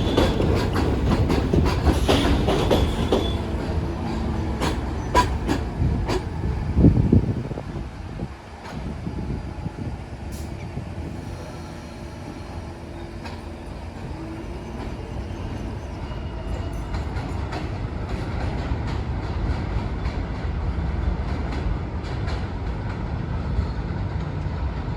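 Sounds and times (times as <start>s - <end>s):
wheels clicking over rail joints: 0.0s - 7.2s
subway train rumbling: 0.0s - 24.9s.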